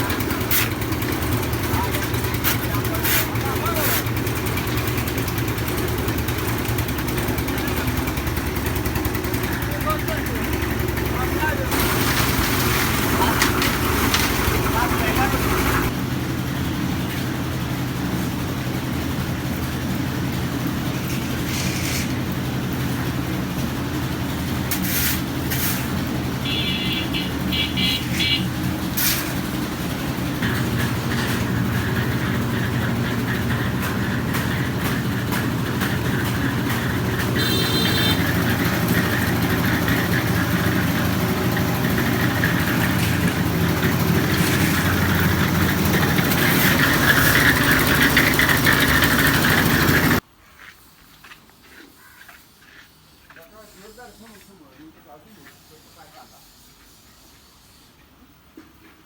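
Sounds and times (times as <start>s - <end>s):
small engine running: 0.0s - 24.7s, 26.4s - 50.2s.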